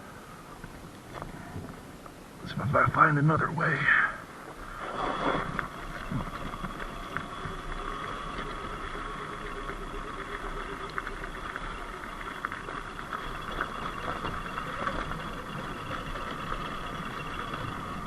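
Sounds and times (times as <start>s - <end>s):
electric motor whining: 4.6s - 18.0s.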